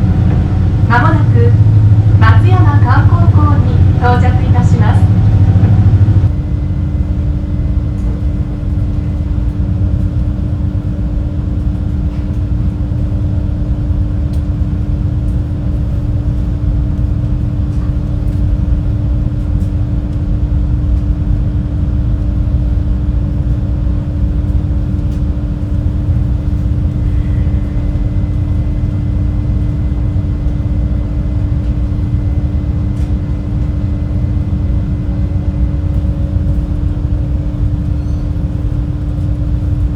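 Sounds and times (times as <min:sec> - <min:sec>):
boat engines rumbling: 0:00.0 - 0:11.8, 0:23.3 - 0:39.9.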